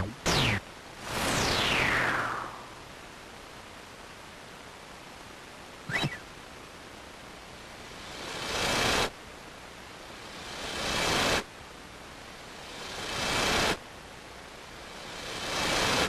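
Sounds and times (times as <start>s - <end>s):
swelling hiss cutting off: 1.0s - 2.9s.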